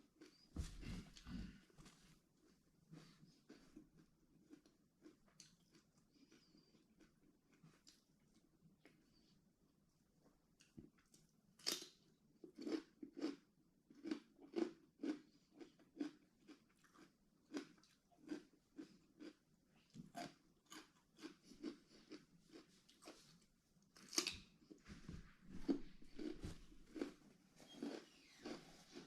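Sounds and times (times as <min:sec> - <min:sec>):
person chewing crunchy food: 0:03.0 - 0:08.4, 0:10.6 - 0:24.8, 0:25.5 - 0:29.0.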